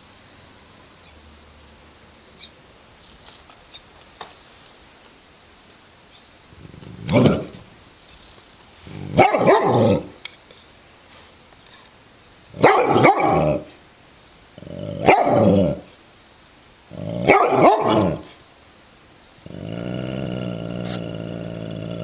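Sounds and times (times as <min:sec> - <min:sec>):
dog barking: 0:09.1 - 0:10.1, 0:12.6 - 0:13.7, 0:15.0 - 0:15.8, 0:17.2 - 0:18.3.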